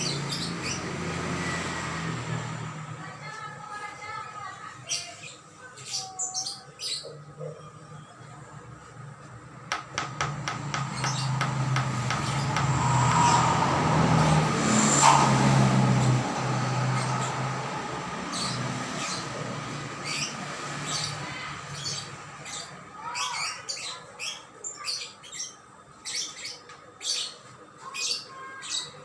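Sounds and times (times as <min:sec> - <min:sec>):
passing vehicle engine: 0:00.0 - 0:03.0, 0:09.8 - 0:21.8.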